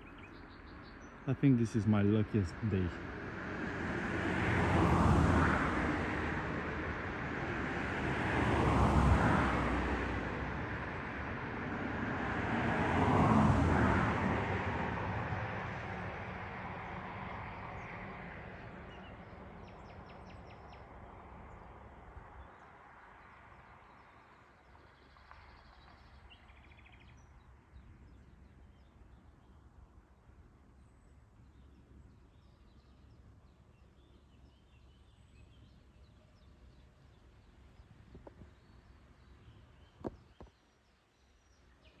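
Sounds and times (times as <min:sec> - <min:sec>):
vehicle passing: 0:01.3 - 0:20.0.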